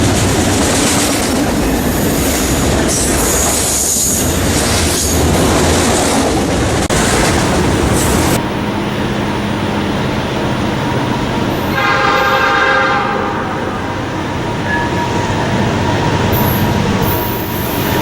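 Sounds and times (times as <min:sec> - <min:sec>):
train running on rails: 0:00.0 - 0:18.0
train horn blast: 0:11.6 - 0:15.1.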